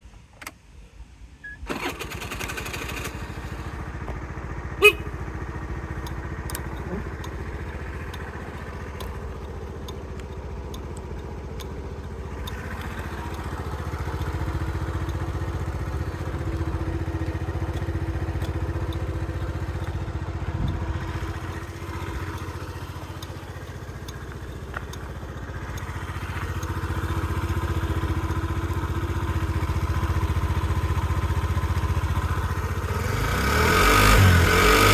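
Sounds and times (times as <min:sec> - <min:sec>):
scooter engine starting and idling: 0:01.4 - 0:34.9
sharp click: 0:06.0 - 0:14.4.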